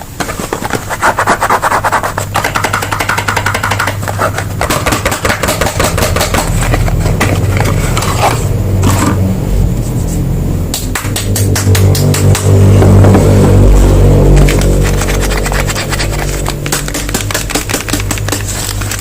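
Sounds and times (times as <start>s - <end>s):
low hum: 1.6s - 19.0s
crinkling plastic and paper: 14.6s - 19.0s.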